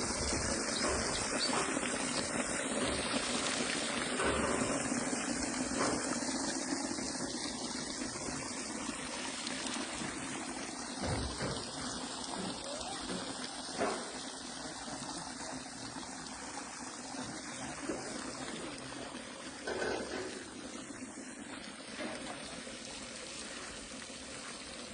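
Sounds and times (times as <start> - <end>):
waterfall splashing into stream: 0.0 - 16.6.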